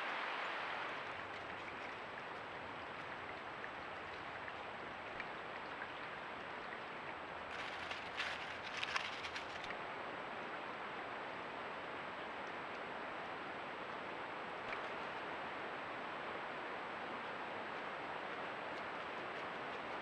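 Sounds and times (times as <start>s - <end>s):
steady outdoor hiss: 0.0s - 20.0s
short rustles and clicks: 7.5s - 9.8s.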